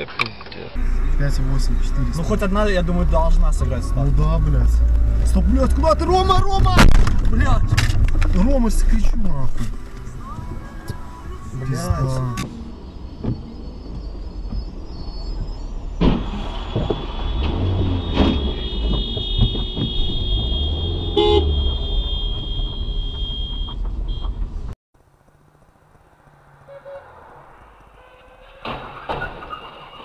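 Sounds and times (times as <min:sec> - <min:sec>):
road traffic noise: 0:00.0 - 0:30.0
car horn honking: 0:16.8 - 0:24.4, 0:26.6 - 0:28.6.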